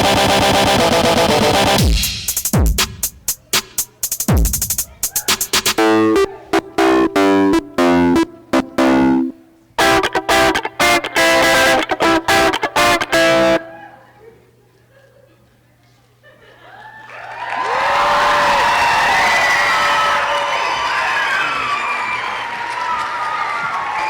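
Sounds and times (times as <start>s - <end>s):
electronic remix with distorted tones: 0.0s - 13.7s.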